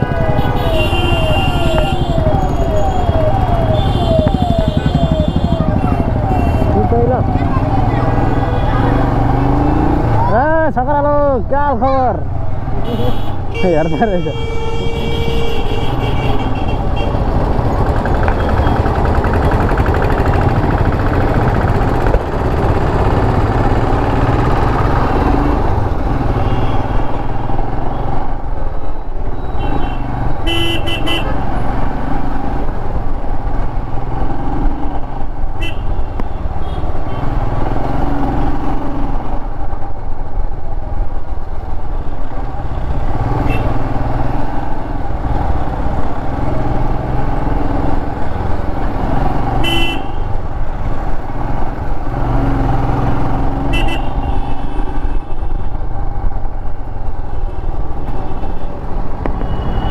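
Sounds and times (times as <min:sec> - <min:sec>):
motorcycle engine running: 0:00.0 - 0:10.2, 0:16.4 - 0:25.9
road traffic noise: 0:00.0 - 0:59.9
vehicle horns tooting: 0:00.2 - 0:02.9, 0:03.6 - 0:07.1, 0:12.8 - 0:17.2, 0:26.3 - 0:27.3, 0:29.4 - 0:31.4, 0:35.6 - 0:37.4, 0:49.6 - 0:50.3, 0:53.6 - 0:55.7, 0:59.4 - 0:59.9.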